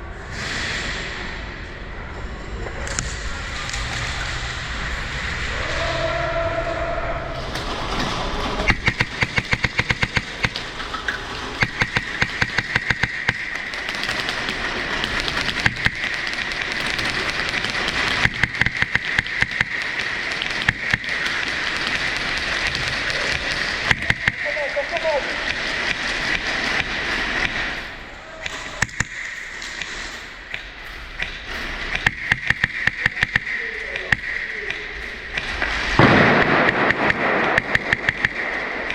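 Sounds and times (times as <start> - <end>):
airsoft gun firing: 8.6 - 10.8, 11.4 - 27.9, 28.5 - 30.1, 31.9 - 38.9.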